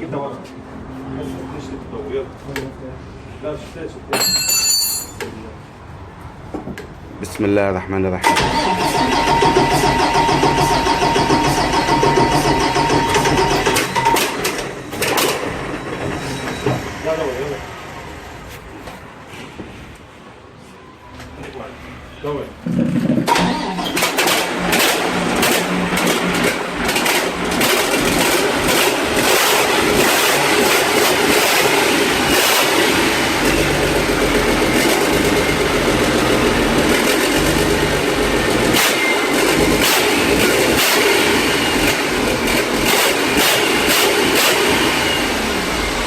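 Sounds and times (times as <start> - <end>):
large diesel engine running: 8.2 - 18.8, 22.8 - 46.0.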